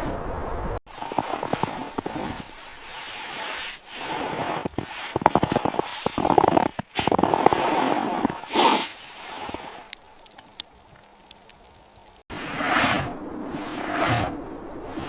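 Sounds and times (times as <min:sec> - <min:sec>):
sharp crackling and snapping: 0:00.9 - 0:12.3
rushing hiss: 0:07.9 - 0:10.0.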